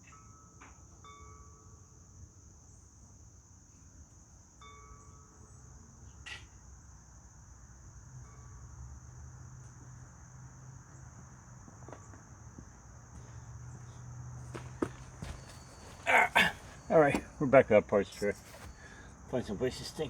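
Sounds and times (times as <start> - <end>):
crickets chirping: 0.0 - 20.0
small knocks: 11.7 - 17.4.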